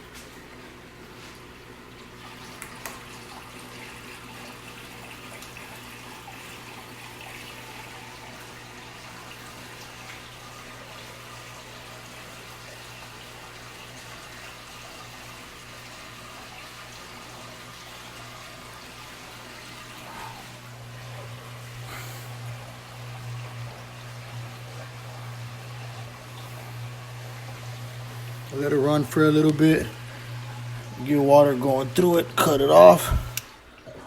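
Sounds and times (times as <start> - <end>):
water running and splashing: 0.0 - 34.0
constant low hum: 19.8 - 34.0.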